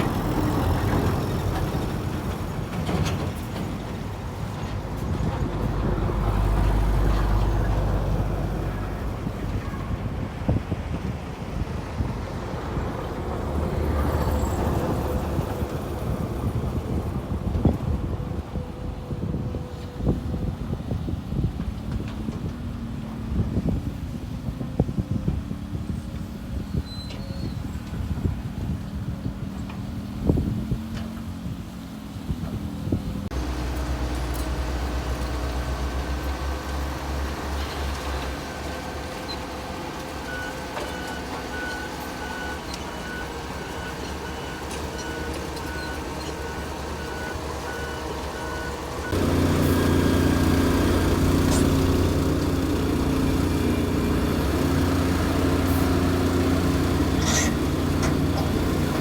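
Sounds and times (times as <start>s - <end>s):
wind buffeting microphone: 0.0s - 33.4s
heavy truck engine rumbling: 0.0s - 59.0s.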